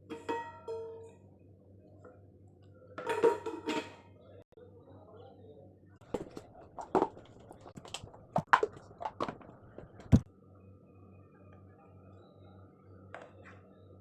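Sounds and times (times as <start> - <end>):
steel containers knocking and clinking: 0.1 - 1.0
faint low hum: 0.7 - 14.0.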